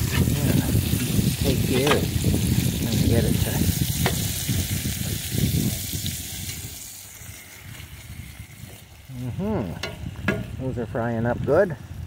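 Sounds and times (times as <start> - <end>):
metal spatula scraping a skillet: 0.0 - 2.1
potatoes sizzling in oil: 0.0 - 10.8.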